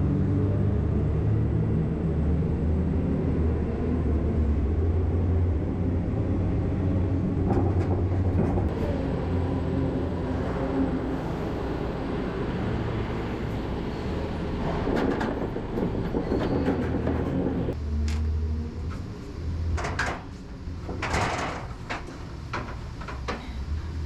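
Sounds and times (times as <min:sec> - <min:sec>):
knocks and clanks: 0:07.4 - 0:08.7, 0:14.6 - 0:18.2, 0:19.7 - 0:23.6.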